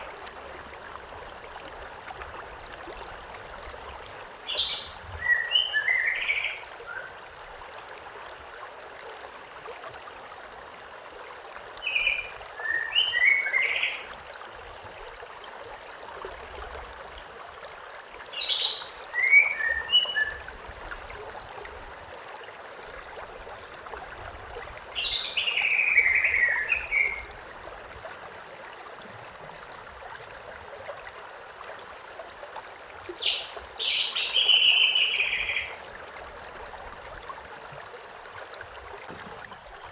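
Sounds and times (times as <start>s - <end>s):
stream running: 0.0s - 39.9s
songbird singing: 4.5s - 7.2s, 11.8s - 14.1s, 18.3s - 20.5s, 25.0s - 27.3s, 33.2s - 35.8s.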